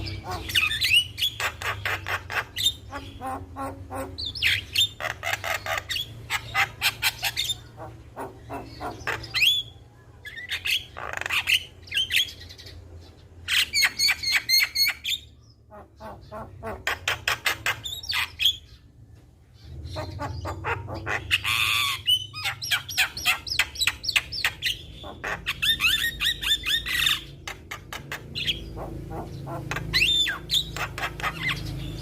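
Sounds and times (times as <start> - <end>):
harsh bird squawk: 0.0 - 9.7, 19.6 - 32.0
bird chattering and whistling: 0.0 - 12.8, 13.4 - 18.9, 19.6 - 32.0.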